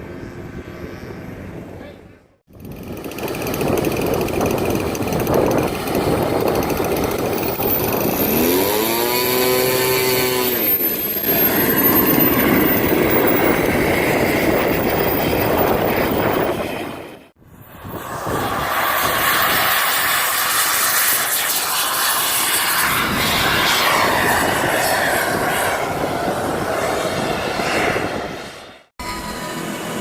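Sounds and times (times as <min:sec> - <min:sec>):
model airplane motor: 0:02.5 - 0:17.0
wind noise on microphone: 0:02.5 - 0:29.3.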